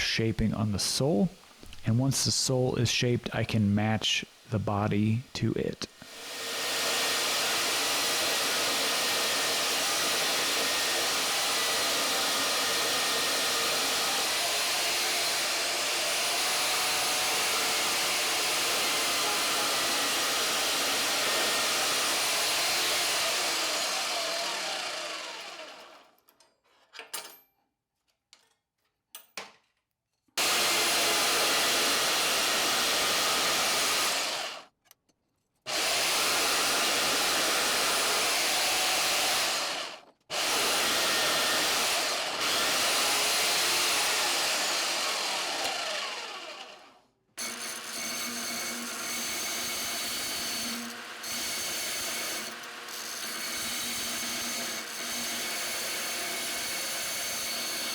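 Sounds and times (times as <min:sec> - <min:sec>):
power tool grinding metal: 0:06.0 - 0:26.0, 0:30.4 - 0:34.6, 0:35.7 - 0:57.9.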